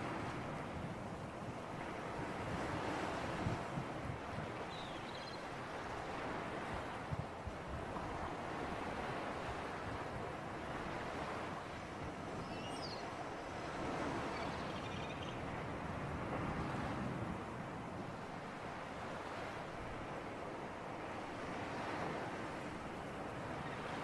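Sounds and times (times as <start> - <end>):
sea surf: 0.0 - 24.0
wind: 0.0 - 24.0.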